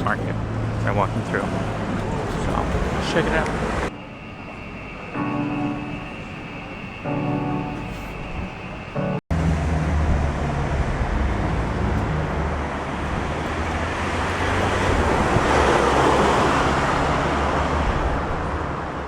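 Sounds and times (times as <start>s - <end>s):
road traffic: 0.0s - 19.0s
wind rumbling on microphone: 9.7s - 19.0s.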